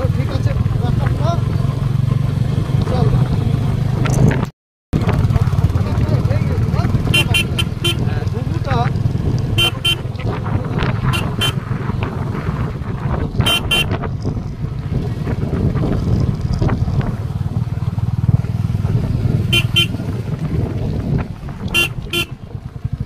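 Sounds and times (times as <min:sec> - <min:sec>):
motorcycle engine running: 0:00.0 - 0:23.0
horn double beep: 0:07.1 - 0:08.0, 0:09.6 - 0:10.0, 0:13.5 - 0:13.9, 0:19.5 - 0:19.9.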